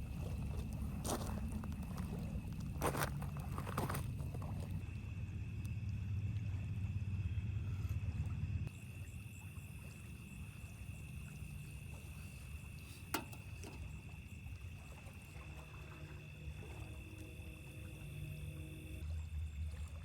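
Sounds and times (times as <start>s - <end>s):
low rumble: 0.0s - 8.7s
insects trilling: 0.0s - 20.0s.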